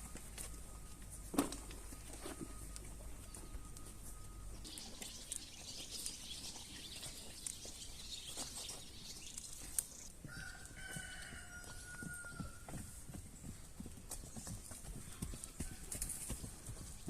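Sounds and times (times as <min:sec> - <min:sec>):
small birds chirping: 0:03.1 - 0:12.3.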